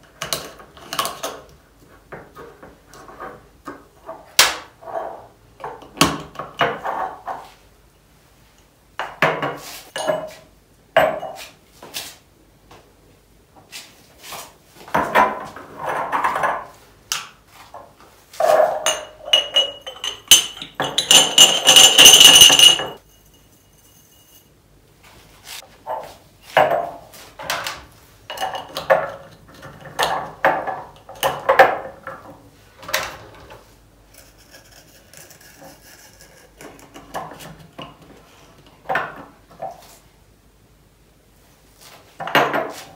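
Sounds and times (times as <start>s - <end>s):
glass jars clinking: 9.9s - 10.4s, 18.4s - 24.5s
containers rattling: 18.8s - 23.0s.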